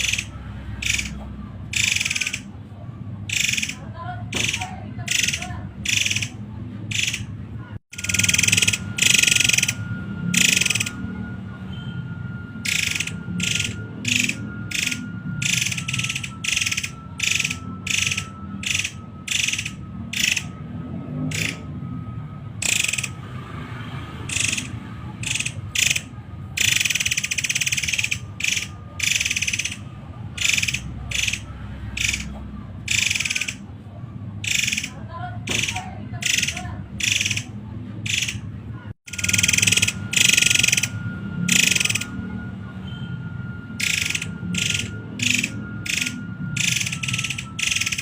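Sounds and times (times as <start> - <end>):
bird rasping calls: 0.0 - 2.6, 3.2 - 11.0, 12.6 - 20.6, 21.3 - 21.6, 22.6 - 23.2, 24.2 - 33.7, 34.4 - 38.5, 39.1 - 42.1, 43.8 - 48.0
faint whistle-like tone: 8.0 - 19.2, 39.1 - 48.0.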